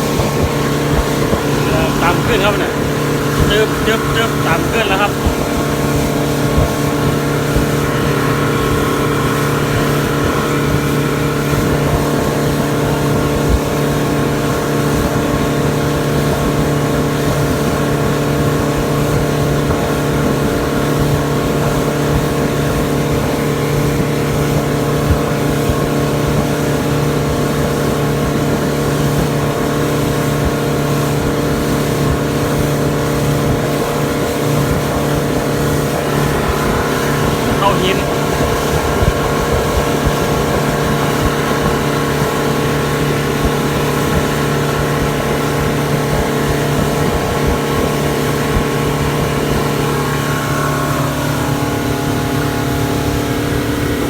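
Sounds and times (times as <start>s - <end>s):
motorboat engine drone: 0.0s - 54.0s.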